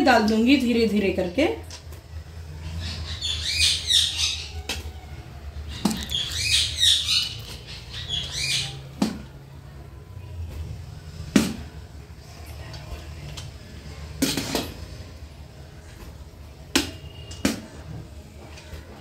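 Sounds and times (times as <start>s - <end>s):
bird chirping: 2.6s - 5.1s, 5.7s - 8.9s.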